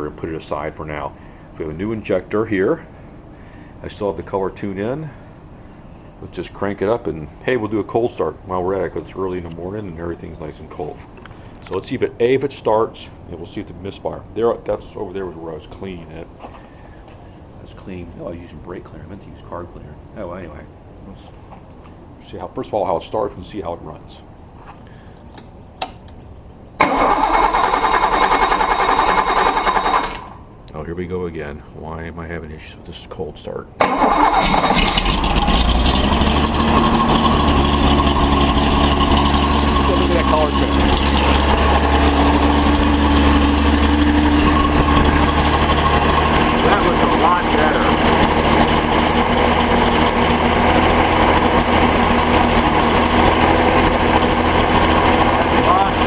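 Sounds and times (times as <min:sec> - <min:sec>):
starter motor cranking engine: 0:26.8 - 0:30.4, 0:33.8 - 0:56.0.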